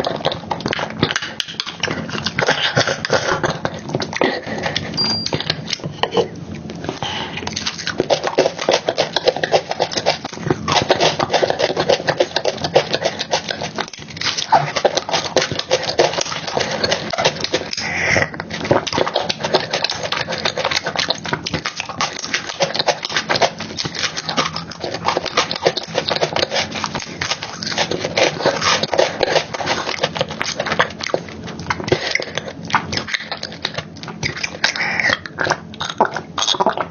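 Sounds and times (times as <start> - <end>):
wet chewing and lip-smacking: 0.0 - 36.9.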